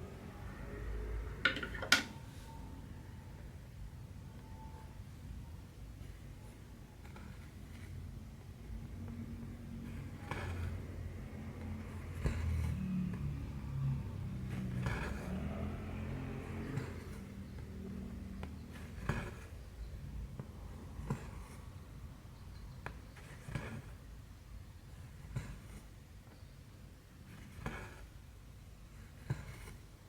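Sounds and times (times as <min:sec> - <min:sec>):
needle and thread through fabric: 0:06.0 - 0:21.8, 0:27.2 - 0:30.0.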